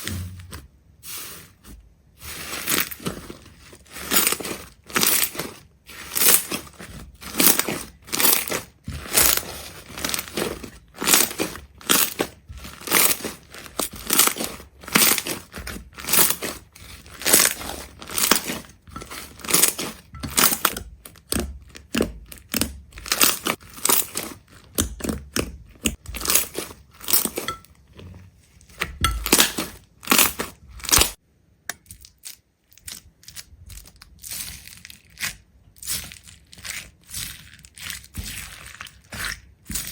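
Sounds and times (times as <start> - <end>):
crisp crunching and crackling: 2.2 - 27.6, 32.0 - 39.9.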